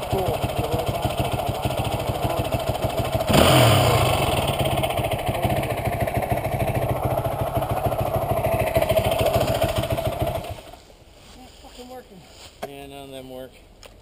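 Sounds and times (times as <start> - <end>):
dirt bike engine idling and revving: 0.0 - 10.9.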